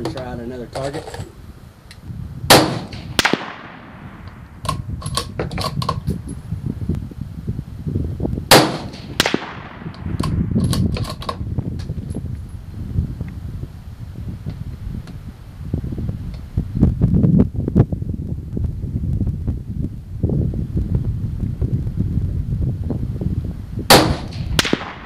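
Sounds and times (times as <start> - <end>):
rifle shots with ringing echo: 2.5 - 4.5, 8.5 - 10.4, 23.9 - 25.0.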